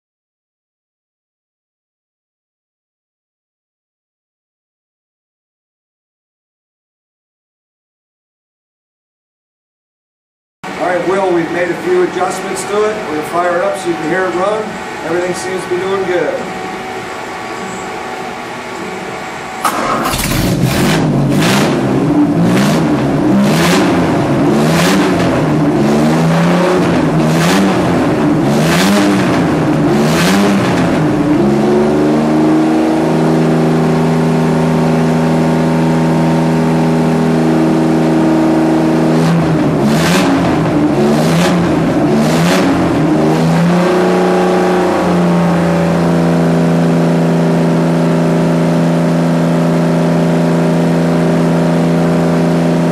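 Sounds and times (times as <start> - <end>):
car engine revving and idling: 10.6 - 52.9.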